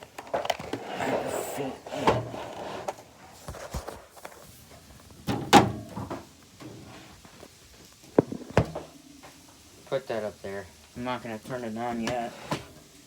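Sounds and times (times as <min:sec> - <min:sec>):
heavy thunk on hard surface: 0:08.2 - 0:08.8.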